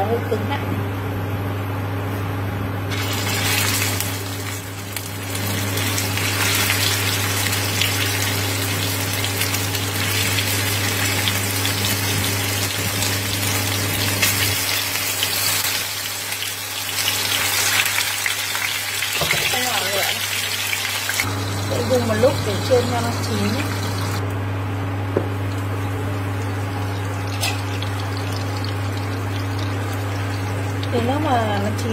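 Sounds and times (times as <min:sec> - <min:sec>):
meatballs sizzling in hot oil: 0:02.9 - 0:24.2, 0:26.6 - 0:31.1
steady low hum: 0:21.2 - 0:31.9.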